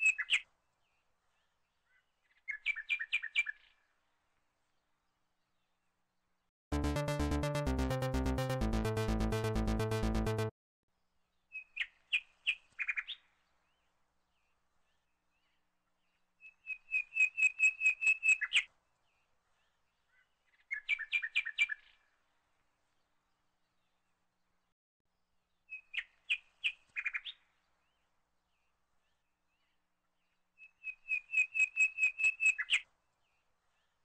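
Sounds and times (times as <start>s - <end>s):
background music with a beat: 6.7s - 10.5s.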